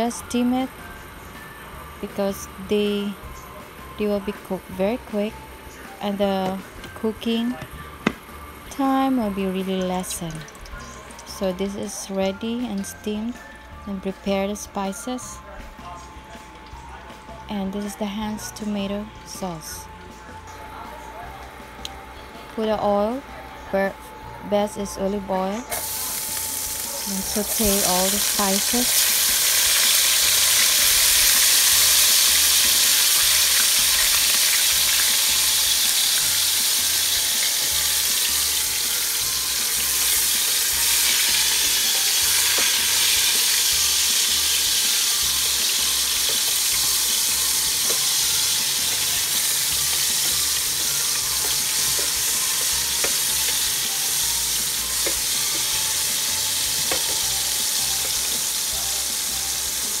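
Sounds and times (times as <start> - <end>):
vegetables sizzling in hot oil: 8.5 - 11.6, 25.7 - 60.0
spatula stirring and tapping pan: 46.2 - 53.8, 54.7 - 57.4.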